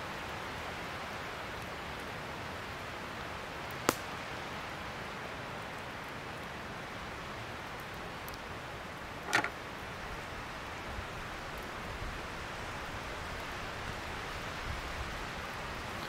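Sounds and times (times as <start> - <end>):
rain hissing in forest: 0.0 - 16.0
sharp crack: 3.8 - 4.2.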